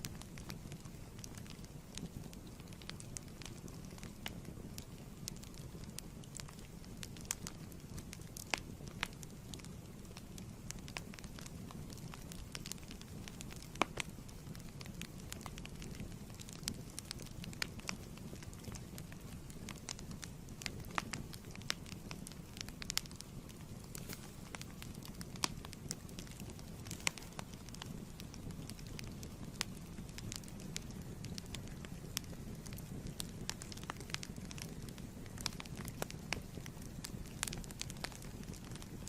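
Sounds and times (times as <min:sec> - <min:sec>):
sharp pops and snaps: 0:00.0 - 0:39.0
wood fire crackling: 0:00.0 - 0:39.0.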